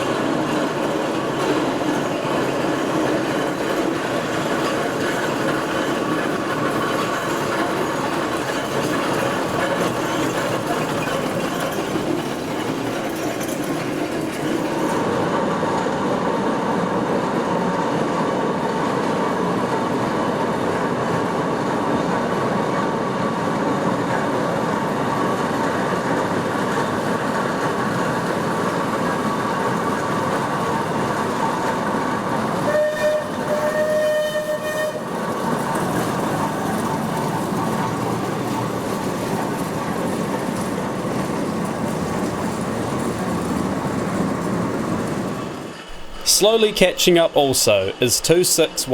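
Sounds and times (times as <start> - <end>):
steam engine mechanical clatter: 0.0 - 15.2
steam whistle blasts: 32.6 - 35.2.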